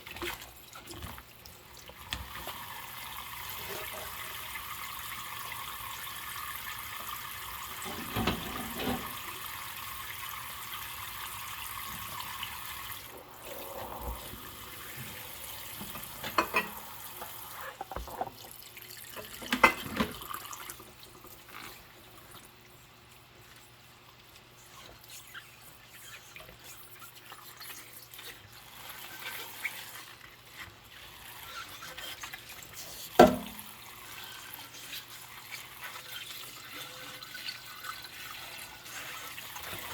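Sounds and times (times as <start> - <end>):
water sounds: 0.0 - 39.9
tap running: 7.0 - 9.3, 14.2 - 18.5, 33.2 - 33.7
dishes knocking: 16.0 - 16.8, 33.2 - 33.6.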